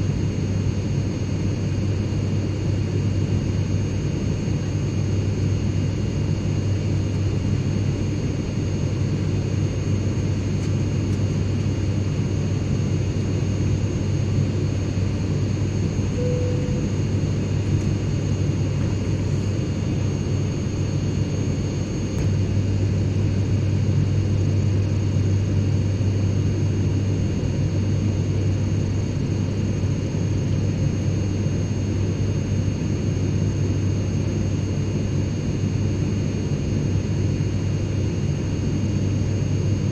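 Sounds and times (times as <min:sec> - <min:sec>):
airplane engine drone: 0:00.0 - 0:39.9
faint high whine: 0:14.0 - 0:26.6
brief faint tone: 0:16.2 - 0:17.2.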